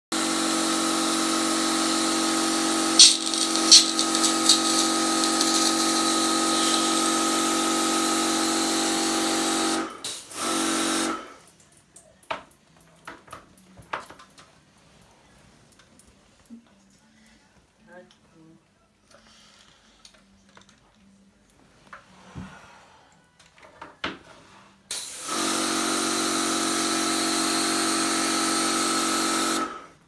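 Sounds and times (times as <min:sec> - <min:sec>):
pressure washer spraying: 0:02.6 - 0:08.1.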